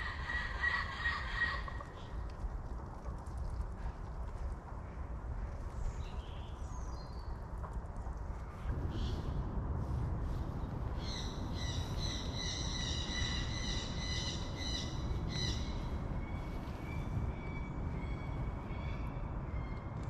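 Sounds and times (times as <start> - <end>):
low rumble: 7.9 - 20.0.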